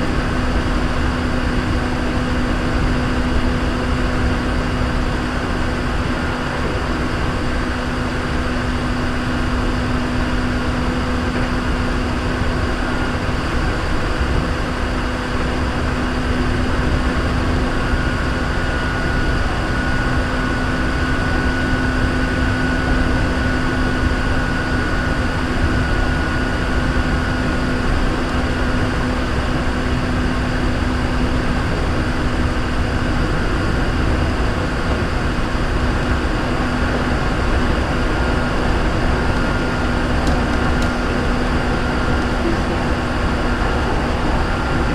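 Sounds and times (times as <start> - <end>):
train wheels rumbling on rail: 30.8 - 44.9.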